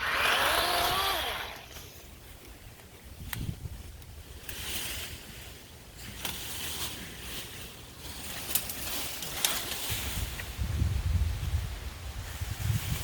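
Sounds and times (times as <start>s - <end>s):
leaves and branches rustling: 0.0s - 13.0s
wind rumbling on microphone: 2.6s - 5.4s, 9.8s - 13.0s.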